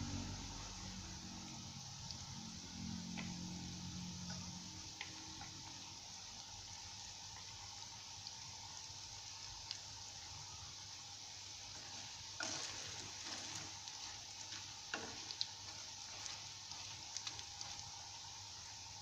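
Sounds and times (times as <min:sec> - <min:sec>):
food deep-frying in oil: 0:00.0 - 0:19.0.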